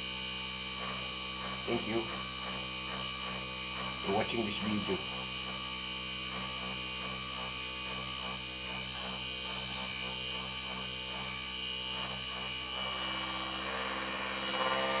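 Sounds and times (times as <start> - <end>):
air conditioner compressor whining hum: 0.0 - 15.0.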